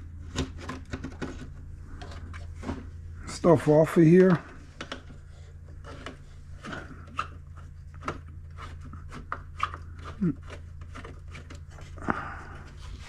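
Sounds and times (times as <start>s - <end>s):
low hum: 0.0s - 13.0s
plastic parts clicking and knocking: 0.3s - 2.8s, 4.2s - 5.2s, 5.8s - 12.1s.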